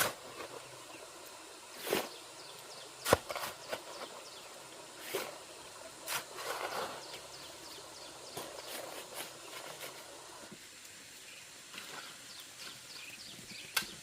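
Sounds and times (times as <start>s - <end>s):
scrapes and knocks: 6.0s - 7.3s, 8.3s - 10.1s.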